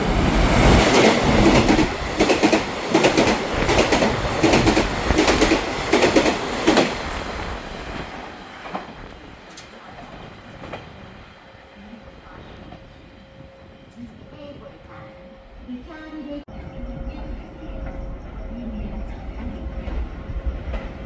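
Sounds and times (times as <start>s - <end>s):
train wheels clattering over rail joints: 0.6s - 11.1s.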